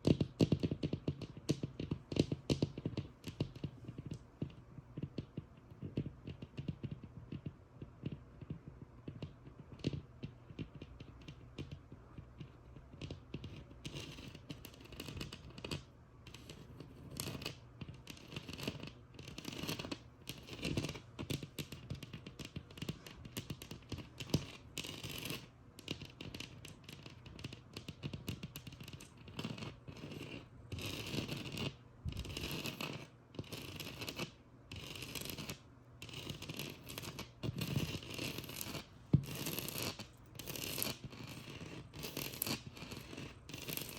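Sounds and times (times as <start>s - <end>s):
light tapping on a wall: 0.0s - 16.6s
scratching on a textured wall: 0.0s - 43.9s.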